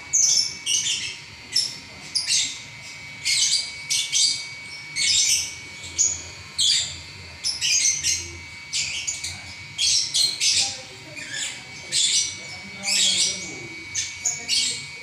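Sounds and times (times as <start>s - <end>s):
lovebird chirping and squeaking: 3.2s - 14.8s.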